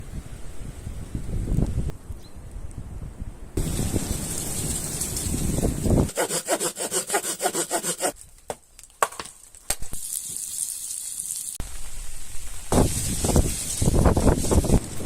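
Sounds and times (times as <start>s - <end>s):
steady hiss: 3.6s - 6.0s, 9.9s - 15.0s
hand saw cutting wood: 6.1s - 8.2s.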